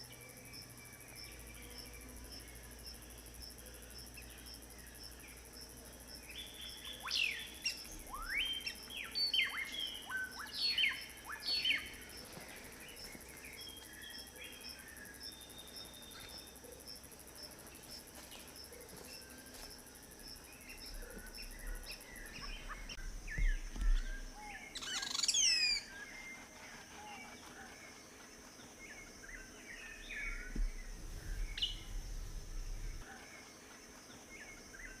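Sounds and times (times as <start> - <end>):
high insect trill: 0.0 - 35.0
birds chirping: 20.0 - 33.4.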